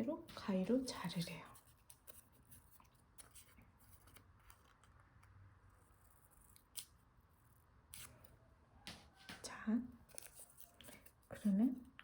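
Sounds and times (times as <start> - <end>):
scissors snipping paper: 5.9 - 7.0, 7.9 - 8.3, 10.1 - 11.7.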